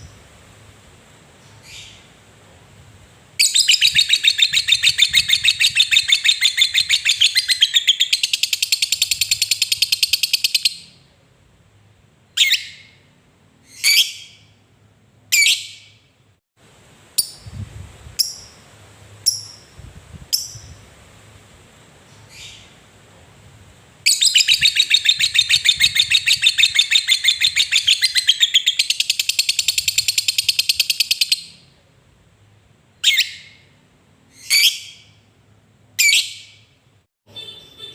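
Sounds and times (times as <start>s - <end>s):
faint bird chirps: 1.4s - 2.2s
sharp bird calls: 3.4s - 10.9s, 24.1s - 31.6s
bird chattering trill: 24.1s - 31.4s.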